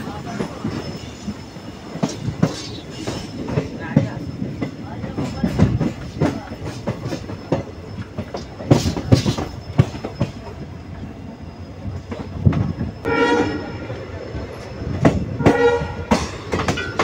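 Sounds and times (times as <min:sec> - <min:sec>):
train wheels clacking on rails: 0:00.0 - 0:17.0
locomotive horn blast: 0:13.0 - 0:14.0, 0:15.4 - 0:16.2.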